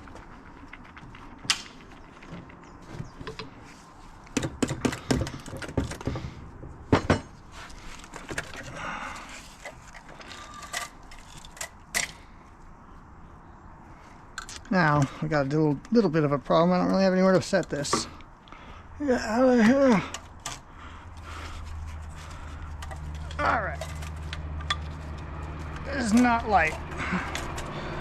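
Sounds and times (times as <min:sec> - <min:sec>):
metal tools clinking and knocking: 0:07.0 - 0:07.4, 0:08.2 - 0:12.2, 0:22.8 - 0:27.8.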